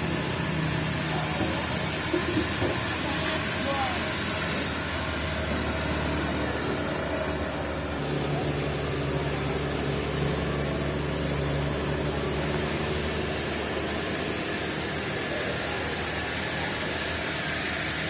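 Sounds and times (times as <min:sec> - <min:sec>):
sawmill engine humming: 0:00.0 - 0:18.0.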